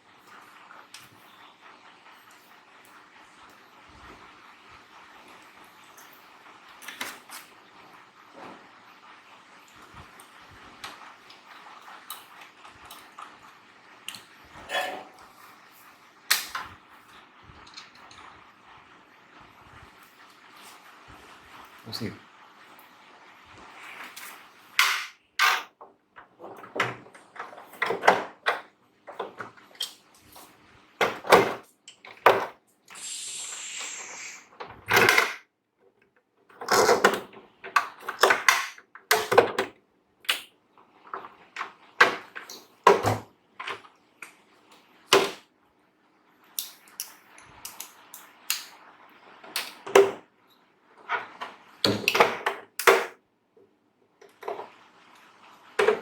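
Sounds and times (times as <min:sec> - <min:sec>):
tools clattering on a workbench: 0:14.6 - 0:15.2
brief hiss: 0:32.9 - 0:34.5.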